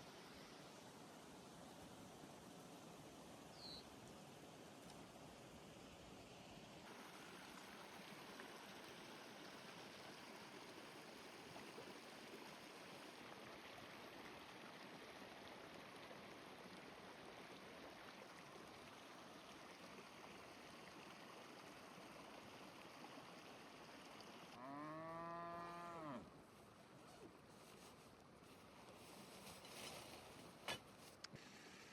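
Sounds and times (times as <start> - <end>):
faint rain hiss: 0.0 - 31.9
cow mooing: 24.6 - 26.3.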